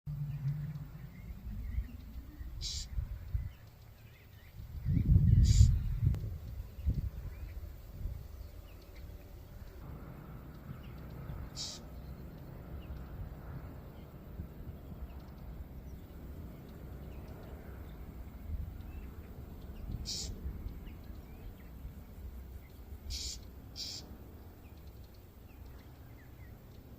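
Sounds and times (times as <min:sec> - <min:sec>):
low outdoor rumble: 0:00.1 - 0:26.9
bird giving high sharp calls: 0:01.8 - 0:03.0, 0:05.4 - 0:05.9, 0:11.5 - 0:12.0, 0:20.0 - 0:20.4, 0:23.1 - 0:24.1.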